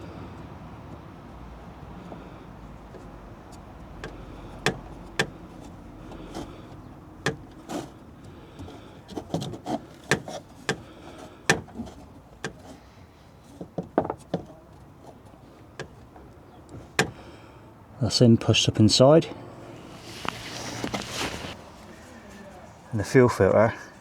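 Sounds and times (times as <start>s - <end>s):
hands clicking and knocking on filter housing: 2.0s - 12.8s, 13.5s - 17.2s.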